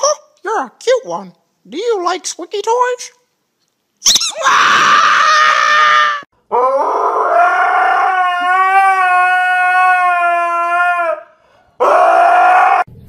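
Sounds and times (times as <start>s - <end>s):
husky howling: 4.4s - 12.9s.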